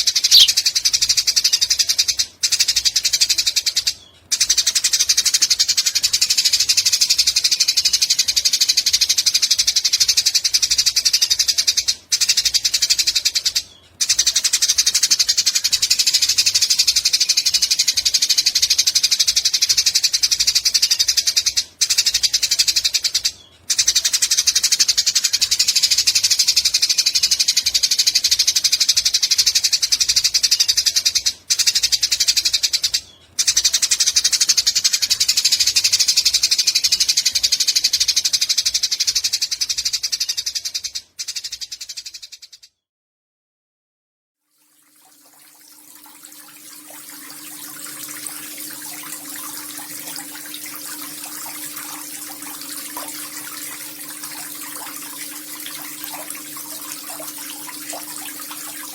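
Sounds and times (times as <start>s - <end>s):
sparrow chattering calls: 0.0s - 0.6s.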